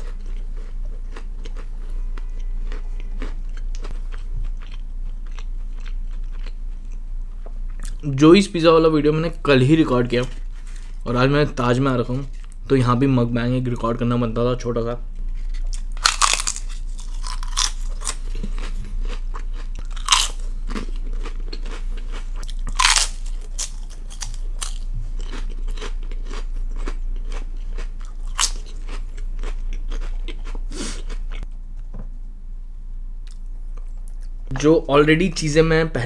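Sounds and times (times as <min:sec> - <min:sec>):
crunching crisp food: 0:00.0 - 0:07.1, 0:15.2 - 0:31.5.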